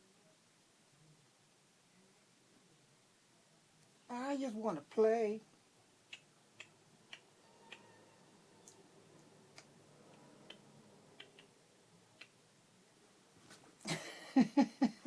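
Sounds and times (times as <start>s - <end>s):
small clicks: 11.2s - 11.5s.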